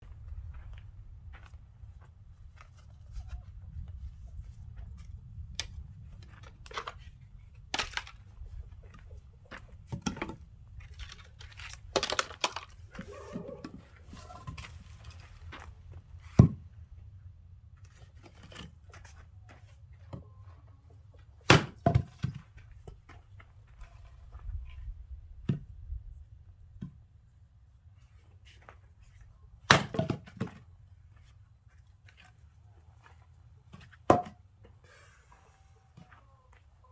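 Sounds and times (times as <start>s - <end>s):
axe strikes splitting wood: 21.5s - 22.3s, 29.7s - 30.4s, 34.1s - 34.4s.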